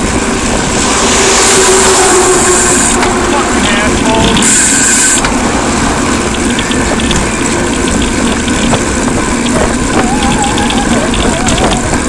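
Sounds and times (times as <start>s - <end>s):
bicycle road noise: 0.0s - 12.0s
motor traffic: 0.0s - 12.0s
high hiss: 0.3s - 6.2s.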